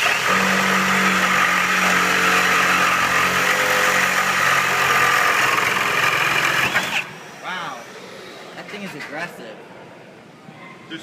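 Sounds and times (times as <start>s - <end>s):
reciprocating saw cutting steel pipe: 0.0s - 7.4s.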